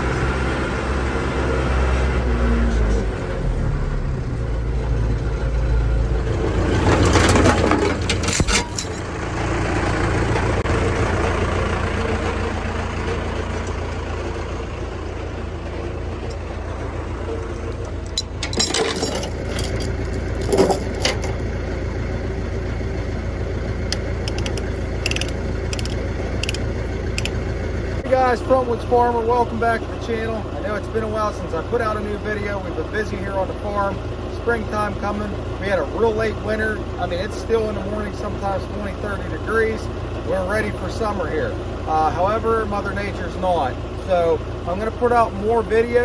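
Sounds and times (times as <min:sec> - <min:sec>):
vehicle engine running: 0:00.0 - 0:46.0
metallic clinks and rattles: 0:07.1 - 0:09.2, 0:17.6 - 0:21.4, 0:23.9 - 0:26.6, 0:27.2 - 0:27.4.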